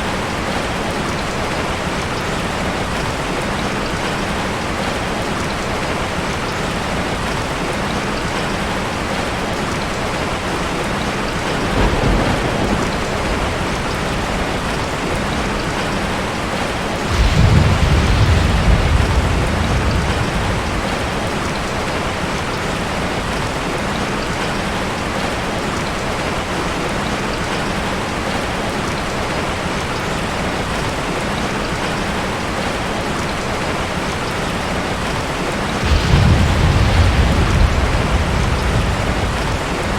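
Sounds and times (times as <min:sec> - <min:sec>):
steady rain: 0:00.0 - 0:39.9
low rumbles of thunder: 0:10.8 - 0:22.1, 0:35.7 - 0:39.9.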